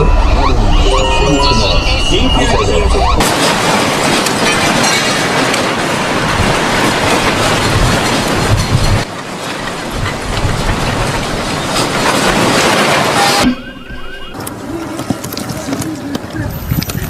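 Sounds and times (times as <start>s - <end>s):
objects rattling together: 3.2s - 13.4s
building rumbling in earthquake: 3.2s - 14.4s.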